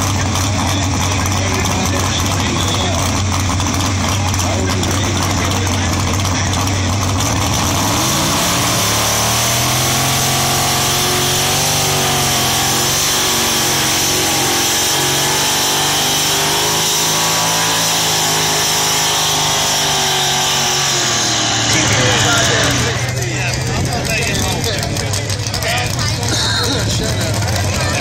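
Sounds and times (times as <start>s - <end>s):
engine at full throttle: 0.0s - 28.0s
steady high whine: 19.1s - 24.4s.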